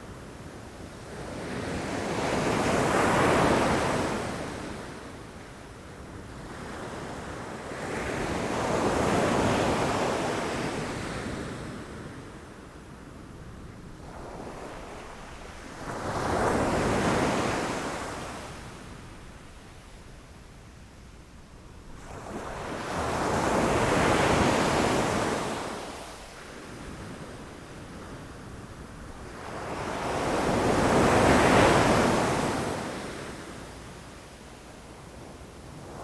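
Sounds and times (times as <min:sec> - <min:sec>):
low rumble of surf: 0:12.1 - 0:36.0.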